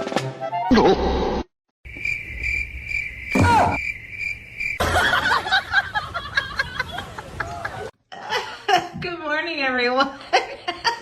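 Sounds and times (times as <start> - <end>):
insect chirping trill: 1.9 - 4.8.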